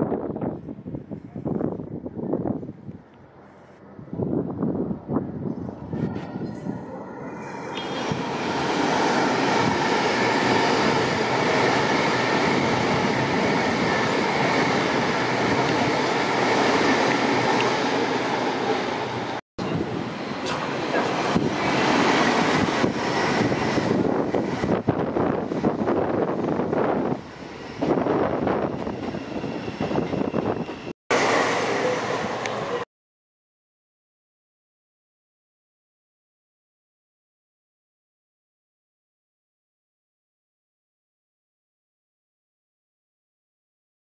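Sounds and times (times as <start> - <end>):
train wheels rushing: 7.8 - 32.8.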